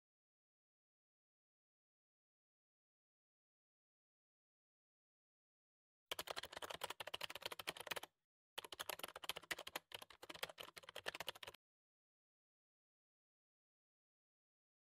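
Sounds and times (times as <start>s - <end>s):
keyboard typing: 6.1s - 11.6s.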